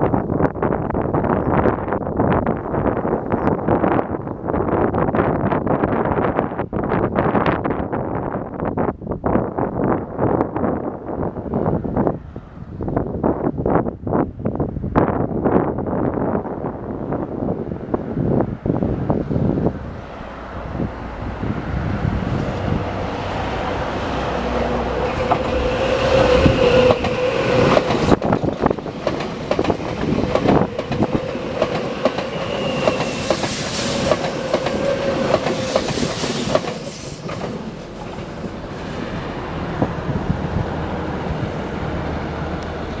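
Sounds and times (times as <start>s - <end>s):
train rumble: 14.8s - 43.0s
high wheel squeal: 24.9s - 28.2s, 30.1s - 38.5s
train wheels clattering over joints: 25.1s - 38.5s.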